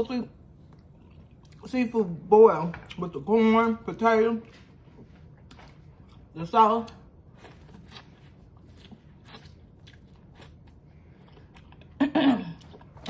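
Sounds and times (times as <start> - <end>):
wet chewing and crunching: 0.6 - 1.8, 4.4 - 12.0.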